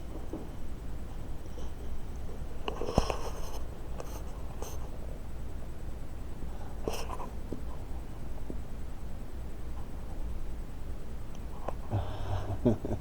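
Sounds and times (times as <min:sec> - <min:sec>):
low steady hum: 0:00.0 - 0:13.0
scratchy rustles: 0:02.6 - 0:04.9.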